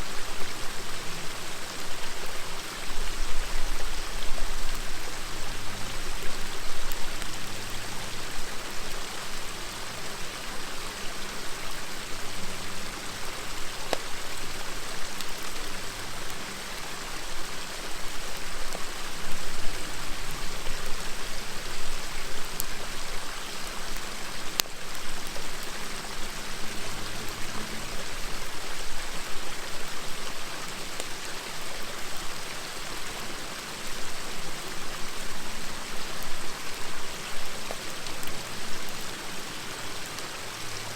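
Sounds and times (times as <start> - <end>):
river water flowing: 0.0 - 40.9
campfire popping: 13.3 - 16.4.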